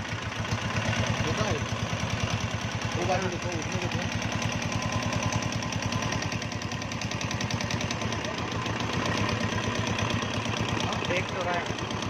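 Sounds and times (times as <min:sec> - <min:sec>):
engine tappet ticking: 0:00.0 - 0:12.0
motorcycle engine idling: 0:00.0 - 0:12.0.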